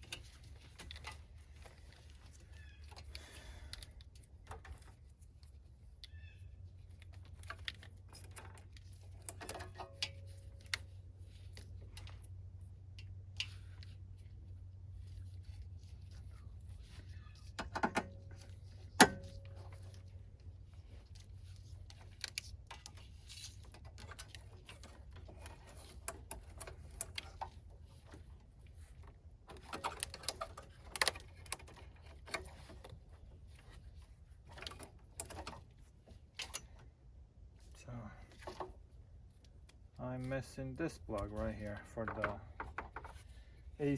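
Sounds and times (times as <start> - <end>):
low steady hum: 0.0 - 43.9
tools and metal parts rattling: 7.0 - 12.2, 15.2 - 36.8.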